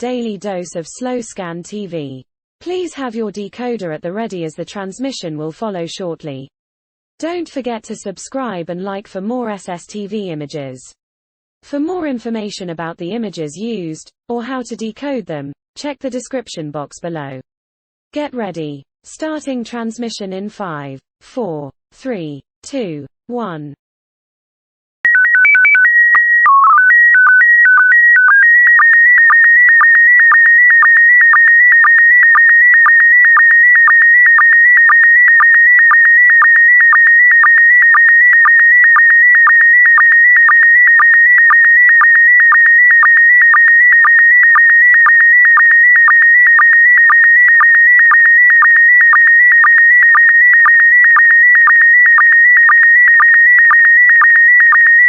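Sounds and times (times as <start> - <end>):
steady high tone: 25.1 - 53.8
header tones stepping pitch: 25.1 - 54.9.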